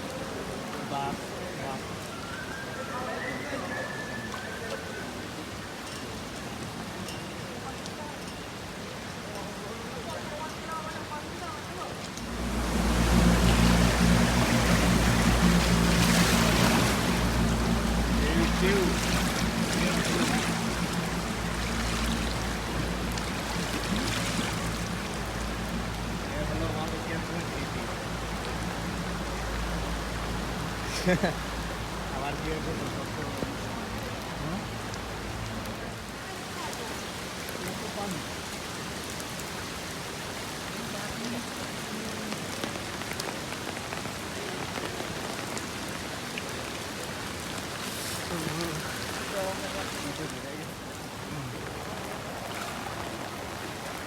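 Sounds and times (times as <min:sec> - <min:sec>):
floodwater rushing: 0:00.0 - 0:54.0
heavy rain: 0:00.0 - 0:54.0
low steady hum: 0:12.2 - 0:30.8.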